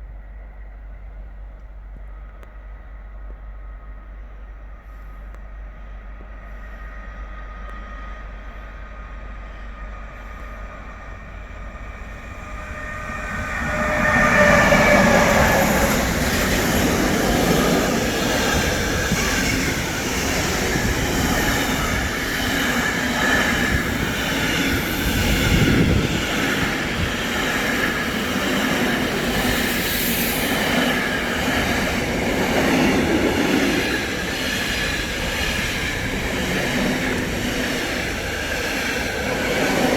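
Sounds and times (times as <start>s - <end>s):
train passing: 0.0s - 39.9s.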